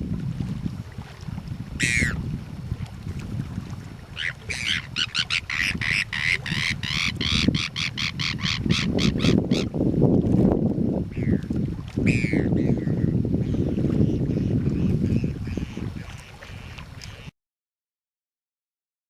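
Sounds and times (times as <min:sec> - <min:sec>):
low rumble of wind and water: 0:00.0 - 0:17.3
bird calling: 0:01.8 - 0:02.2, 0:04.2 - 0:09.7, 0:12.1 - 0:17.3.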